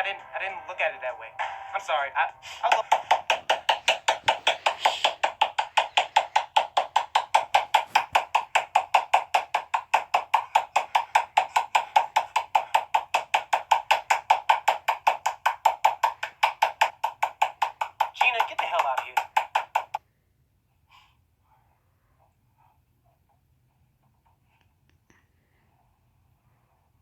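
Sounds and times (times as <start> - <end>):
fast wood block taps: 2.4 - 20.0.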